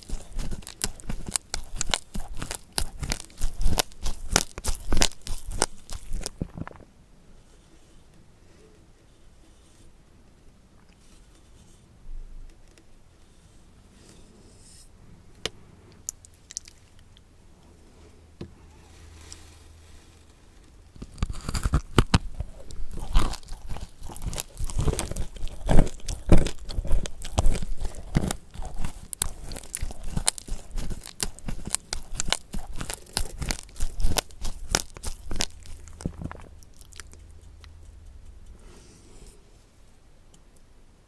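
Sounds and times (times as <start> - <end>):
chewing and crunching food: 0.0 - 6.9, 15.9 - 17.3, 20.7 - 39.5.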